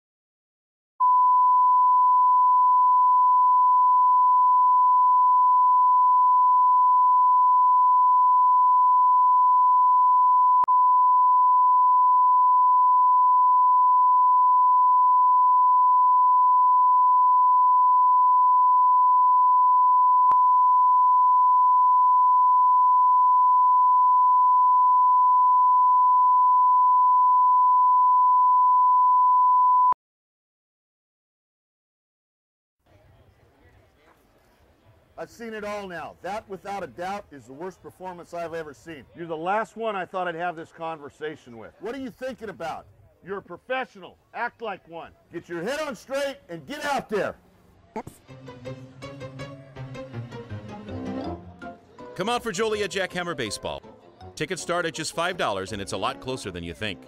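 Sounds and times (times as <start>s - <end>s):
sine test tone: 1.0s - 30.0s.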